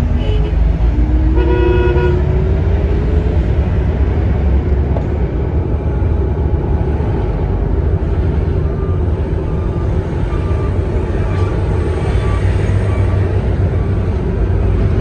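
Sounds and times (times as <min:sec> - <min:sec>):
road traffic rumbling: 0:00.0 - 0:15.0.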